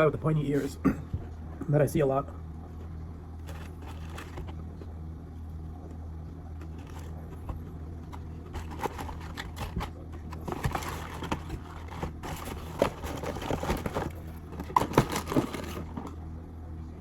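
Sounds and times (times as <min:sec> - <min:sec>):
low mechanical hum: 0:00.0 - 0:17.0
food packaging rustling: 0:03.4 - 0:04.6, 0:06.6 - 0:16.2.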